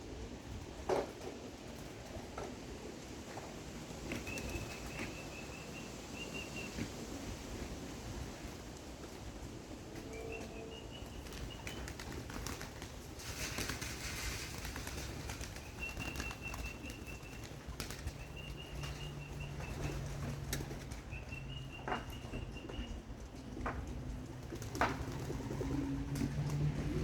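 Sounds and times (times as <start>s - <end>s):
pigeon wings flapping: 4.0s - 5.3s, 11.2s - 21.0s, 23.9s - 27.0s.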